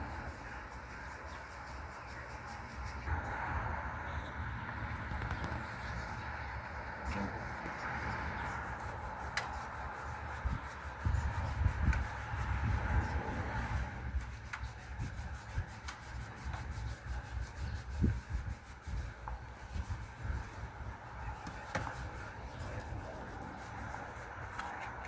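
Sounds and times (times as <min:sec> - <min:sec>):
wood being sanded: 0:08.5 - 0:25.0.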